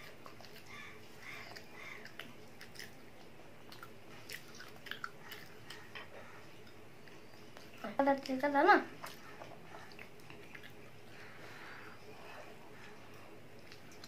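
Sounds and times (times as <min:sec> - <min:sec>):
person chewing: 0:00.0 - 0:07.7.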